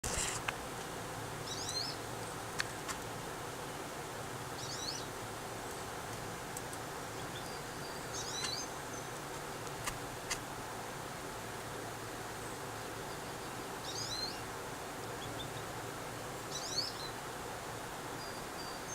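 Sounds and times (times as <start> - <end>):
background hiss: 0.0 - 18.9
small bird chirping: 1.4 - 2.0, 4.6 - 5.1, 7.2 - 9.1, 13.0 - 14.4, 16.5 - 17.2.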